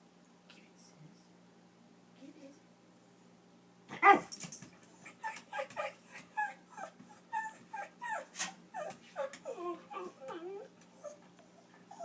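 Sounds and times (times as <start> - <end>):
dog yelping: 3.9 - 4.4, 5.1 - 11.2
dog whining and yipping: 5.1 - 11.3.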